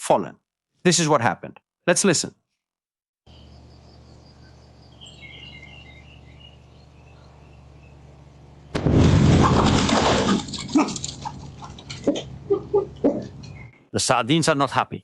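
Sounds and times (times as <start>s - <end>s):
birds chirping: 3.3s - 8.7s, 10.7s - 13.9s
loud boom: 8.7s - 10.2s
cracks and rattles: 8.8s - 12.4s.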